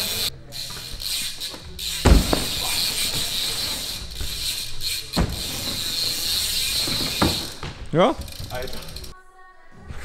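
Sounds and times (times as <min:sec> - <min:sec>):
bicycle freewheel clicking: 0:00.0 - 0:07.6, 0:08.2 - 0:09.2
bike landing thud on wood: 0:01.9 - 0:03.2, 0:05.2 - 0:05.8, 0:06.8 - 0:07.9.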